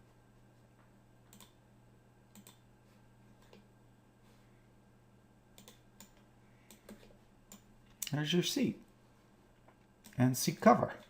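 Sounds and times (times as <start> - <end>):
low steady hum: 0.0 - 11.0
computer mouse clicks: 1.3 - 1.6, 2.3 - 2.6, 5.6 - 8.2.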